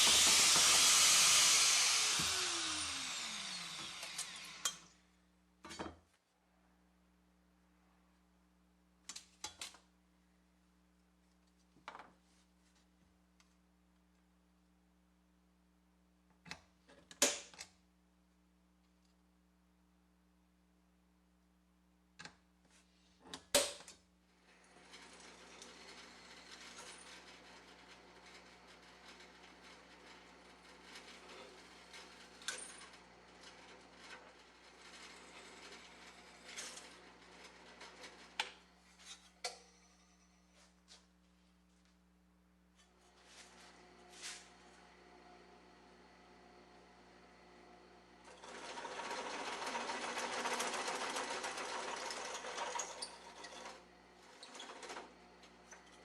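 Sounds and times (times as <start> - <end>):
power tool winding down: 0.0 - 4.9, 48.2 - 55.9.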